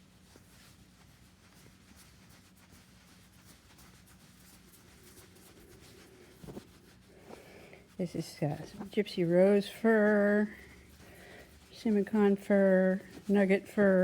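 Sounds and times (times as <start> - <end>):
low steady hum: 0.0 - 14.0
scratchy rustling of fur rubbed: 0.0 - 14.0.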